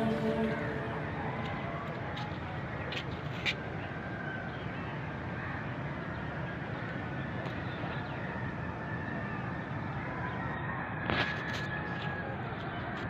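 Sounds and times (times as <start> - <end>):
faint high calls: 0.0 - 2.1
distant traffic hum: 0.0 - 13.0.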